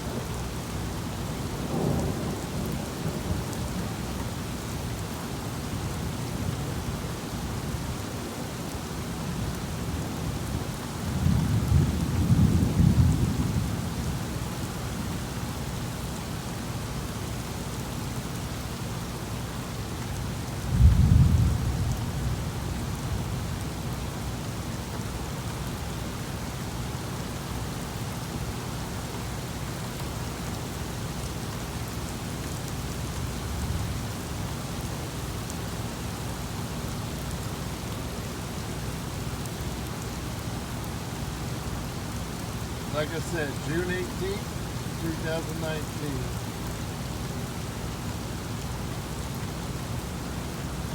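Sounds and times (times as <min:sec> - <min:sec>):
steady rain falling: 0:00.0 - 0:50.9
thunder rumbling: 0:01.5 - 0:04.0.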